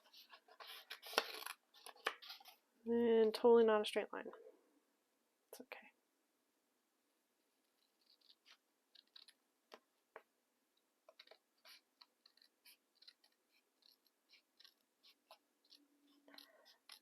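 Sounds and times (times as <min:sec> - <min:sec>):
scissors cutting paper: 0:07.9 - 0:09.4, 0:11.2 - 0:17.0.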